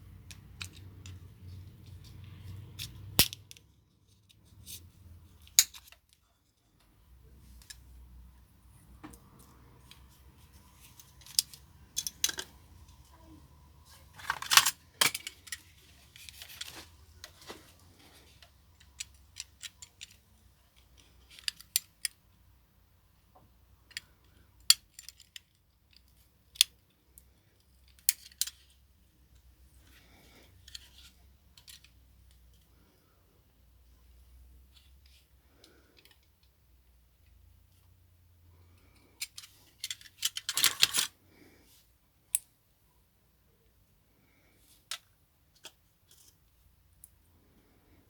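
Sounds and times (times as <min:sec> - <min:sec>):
small parts clicking: 0:00.1 - 0:04.8, 0:11.0 - 0:12.8, 0:18.4 - 0:22.3, 0:23.8 - 0:28.7, 0:38.8 - 0:41.1.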